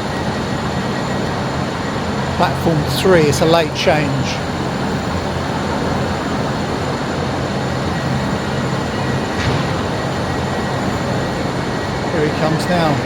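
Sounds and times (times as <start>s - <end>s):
electric train rumble: 0.0s - 13.0s.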